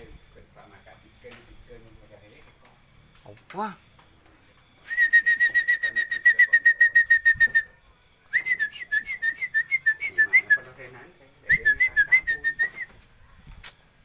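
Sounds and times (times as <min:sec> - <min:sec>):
bird whistling notes: 0:04.8 - 0:10.8, 0:11.5 - 0:13.0.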